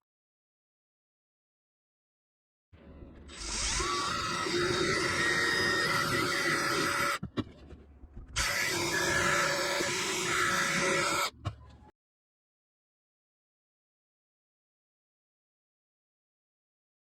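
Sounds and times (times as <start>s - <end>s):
electric drill running: 3.4s - 7.2s, 8.4s - 11.3s.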